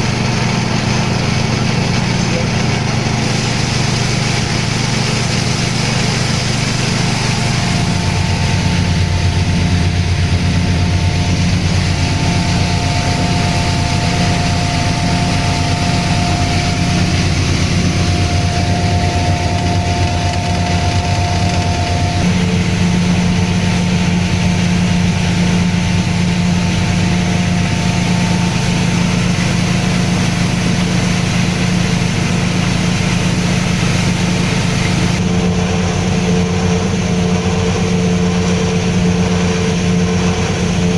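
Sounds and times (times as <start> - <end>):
machine whines: 0.0 - 40.9
small engine hum: 0.0 - 40.9
machine hiss: 3.2 - 36.0.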